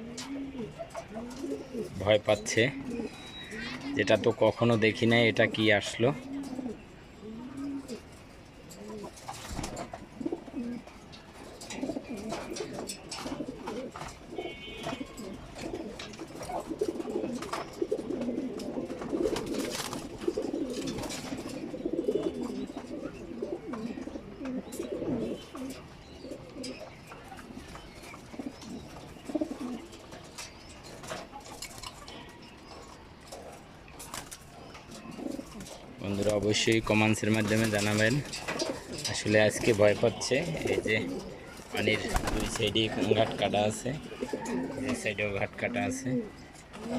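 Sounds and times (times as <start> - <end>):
pigeons cooing: 0.0 - 46.9.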